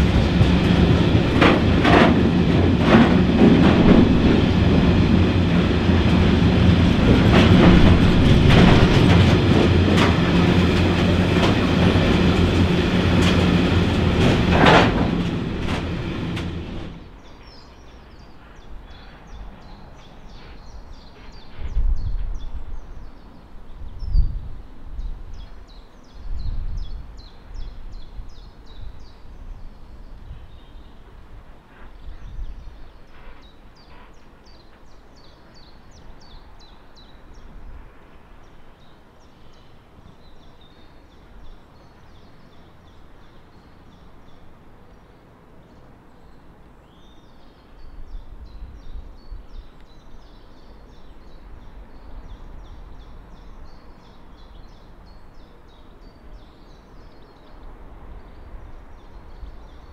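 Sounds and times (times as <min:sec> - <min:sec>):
low background rumble: 0:00.0 - 0:17.2
small birds singing: 0:10.1 - 0:31.2, 0:31.8 - 0:37.6, 0:38.4 - 0:59.9.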